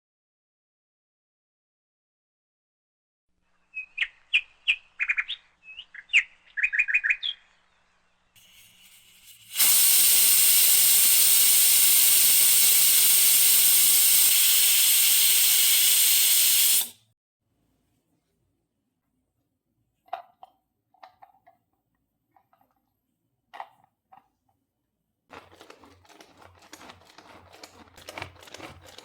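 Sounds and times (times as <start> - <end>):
small birds chirping: 3.7 - 7.9
loud steady hiss: 8.4 - 17.0.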